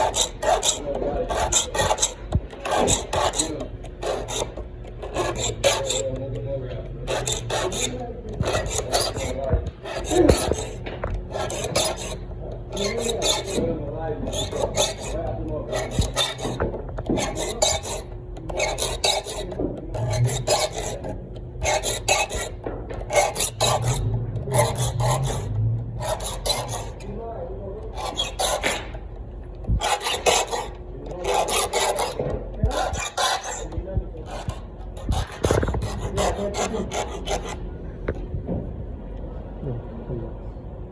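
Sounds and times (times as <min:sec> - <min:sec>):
handsaw cutting wood: 0:00.0 - 0:27.2, 0:27.9 - 0:29.0, 0:29.8 - 0:37.6.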